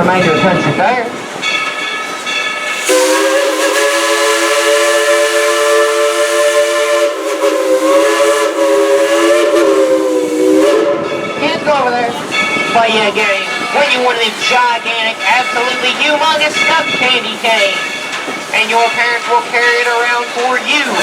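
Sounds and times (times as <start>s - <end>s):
steam locomotive chime whistle: 1.5s - 11.7s
steam hissing: 2.6s - 11.3s.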